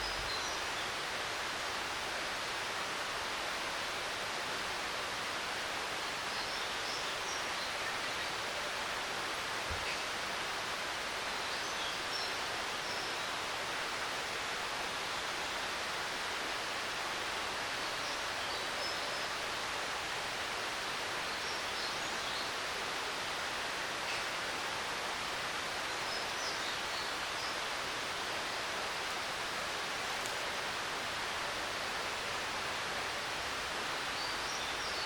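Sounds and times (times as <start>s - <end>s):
small birds chirping faintly: 0.0s - 35.0s
stream running water: 0.0s - 35.0s.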